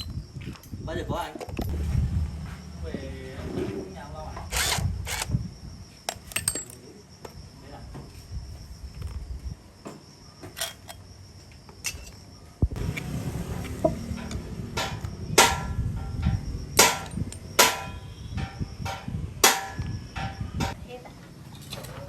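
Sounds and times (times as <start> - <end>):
low background rumble: 1.6 - 5.8
hammer striking metal: 14.1 - 20.8.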